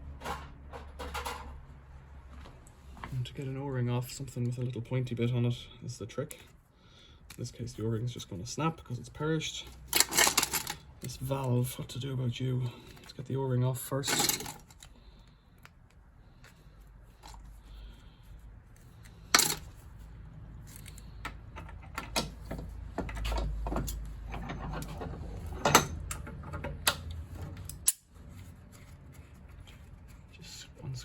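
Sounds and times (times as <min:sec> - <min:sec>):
metallic clicks of brass parts: 0:19.2 - 0:19.7.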